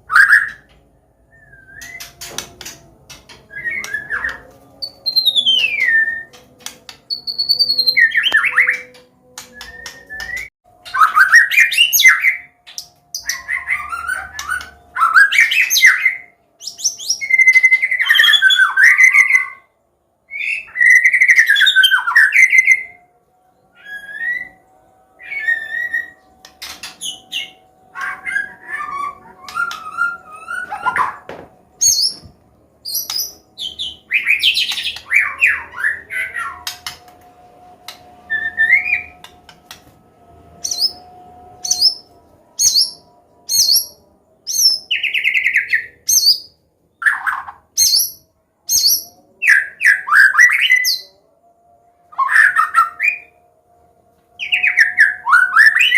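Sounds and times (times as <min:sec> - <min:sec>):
bird singing whistles and chatters: 0:41.7 - 0:51.2.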